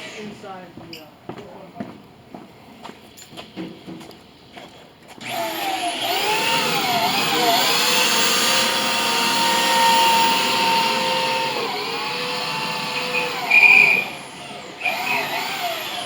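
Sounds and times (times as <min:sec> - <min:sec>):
electric drill boring: 0:05.2 - 0:16.0.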